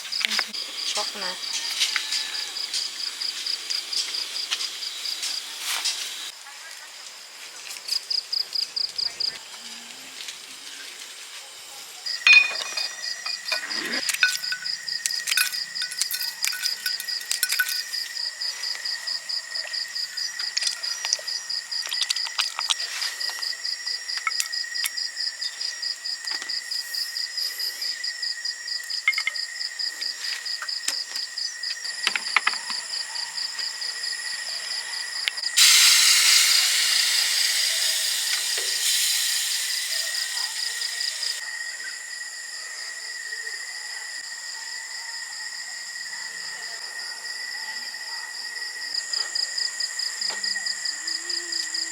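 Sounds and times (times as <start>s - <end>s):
crickets trilling: 0.0s - 51.9s
loud hiss: 3.4s - 6.3s, 35.4s - 41.4s.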